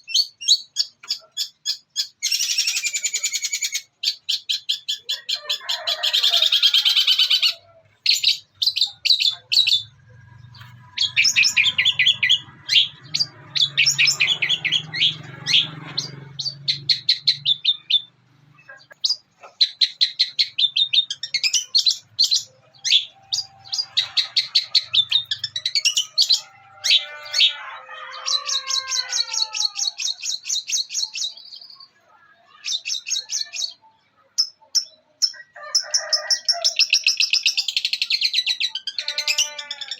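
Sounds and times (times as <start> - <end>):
bird singing high chattering notes: 6.8 - 28.8.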